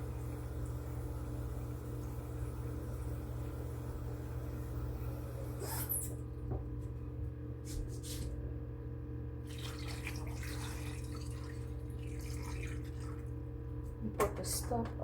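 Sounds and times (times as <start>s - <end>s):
water from tap splashing: 9.4s - 13.4s.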